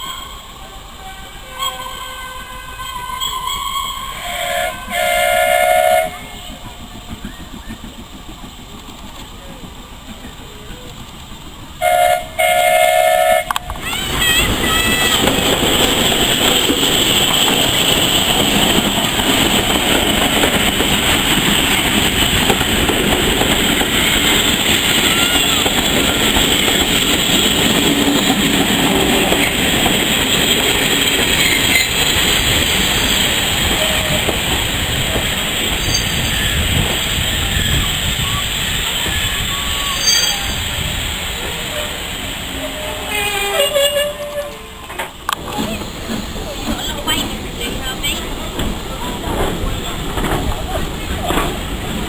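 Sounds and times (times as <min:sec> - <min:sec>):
steam locomotive whistle: 0:00.0 - 0:06.6, 0:11.8 - 0:13.8, 0:32.7 - 0:41.0, 0:41.6 - 0:44.8
train wheels clattering on rails: 0:04.8 - 0:12.8, 0:13.4 - 0:52.0.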